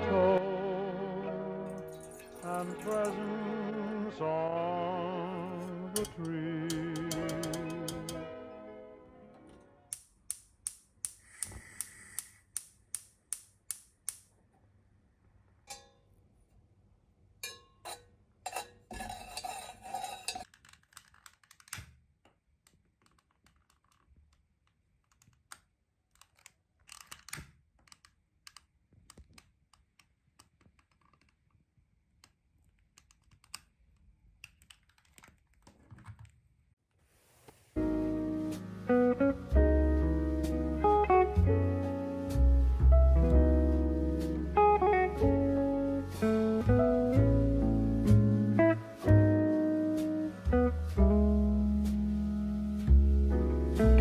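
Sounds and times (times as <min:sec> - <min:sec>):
sharp evenly spaced taps: 0:06.7 - 0:08.2.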